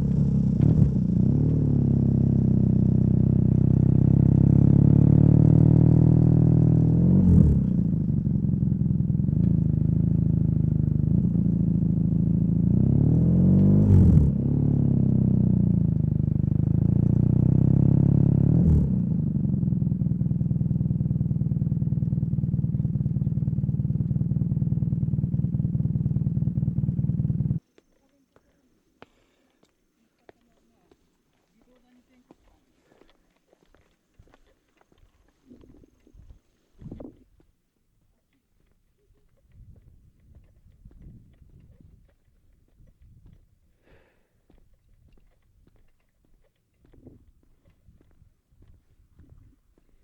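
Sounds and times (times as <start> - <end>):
motorcycle engine under way: 0.0 - 27.6.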